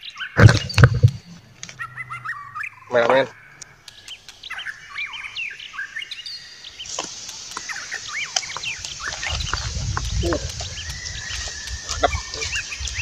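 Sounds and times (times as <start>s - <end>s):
small birds chirping: 0.0s - 13.0s
steady hiss: 3.6s - 13.0s
wind rumble on microphone: 8.7s - 13.0s.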